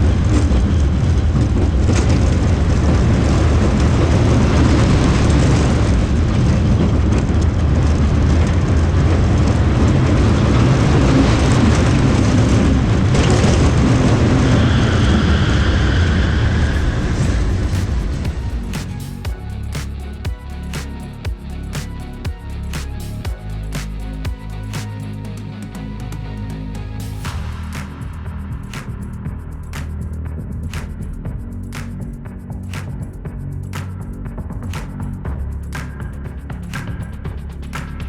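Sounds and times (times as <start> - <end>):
roller coaster rumbling on track: 0.0 - 18.7
high tone: 15.3 - 29.8.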